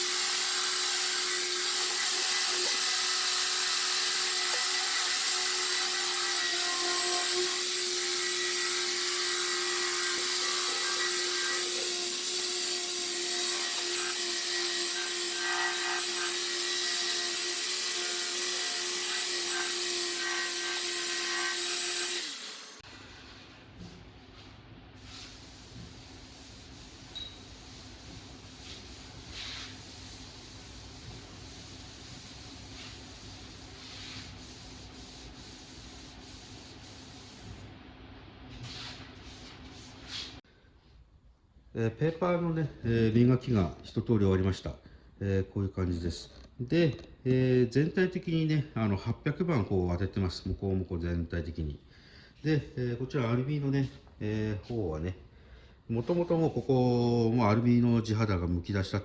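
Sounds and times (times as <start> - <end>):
power sander running: 0.0 - 22.9
sandpaper rubbing on metal panel: 27.6 - 37.0.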